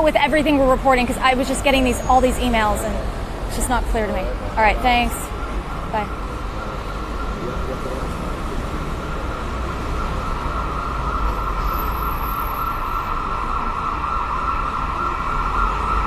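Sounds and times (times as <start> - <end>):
emergency vehicle siren: 0.0 - 16.0
low traffic rumble: 0.0 - 16.0.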